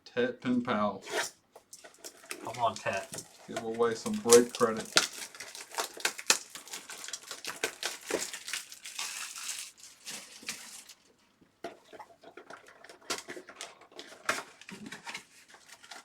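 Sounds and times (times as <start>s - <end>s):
cards rustling and clicking: 1.6s - 11.0s
wrapper crinkling: 1.7s - 11.2s.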